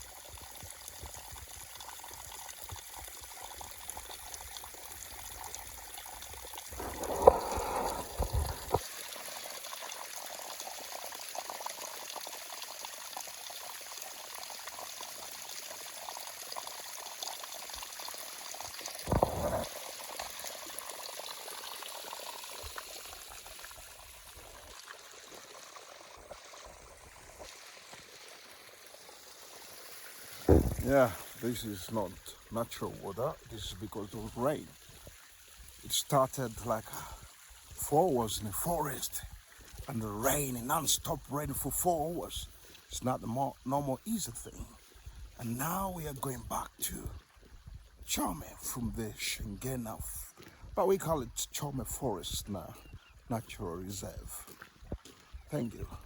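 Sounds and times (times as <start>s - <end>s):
rainwater runoff flowing: 0.0s - 56.0s.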